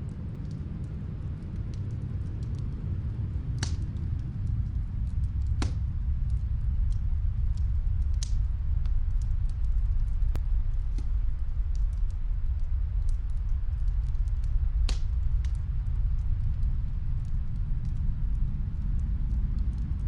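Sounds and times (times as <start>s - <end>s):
snowstorm wind rumble: 0.0s - 20.0s
wood fire crackling and popping: 0.0s - 20.0s.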